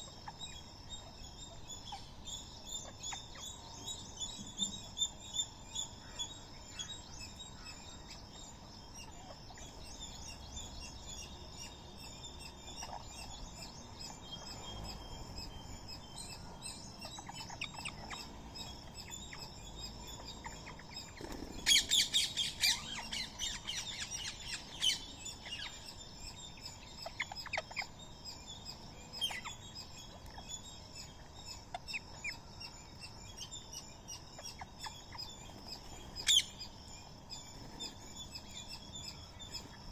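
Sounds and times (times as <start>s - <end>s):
birds chirping: 0.0s - 39.9s
sharp bird calls: 0.0s - 39.9s
parakeets screeching: 17.0s - 25.8s.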